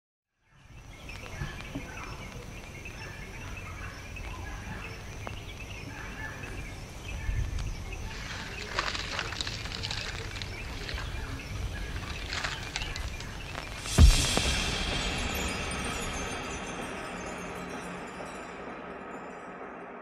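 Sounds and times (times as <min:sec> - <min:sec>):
bird calls: 0:00.6 - 0:14.0
crackling noise: 0:00.6 - 0:18.7.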